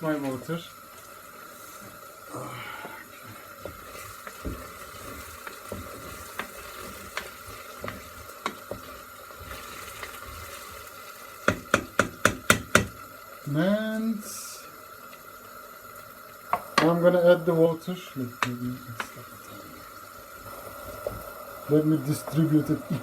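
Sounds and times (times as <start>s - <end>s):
food cooking in a pot: 0.0s - 23.0s
sharp knocks: 11.5s - 13.0s.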